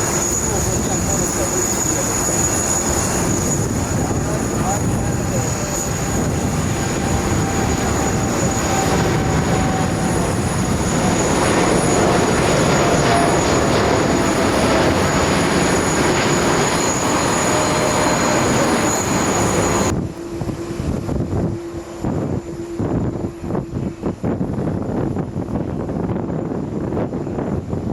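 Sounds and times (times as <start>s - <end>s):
jet engines roaring: 0.0s - 27.9s
wind buffeting: 0.0s - 27.9s.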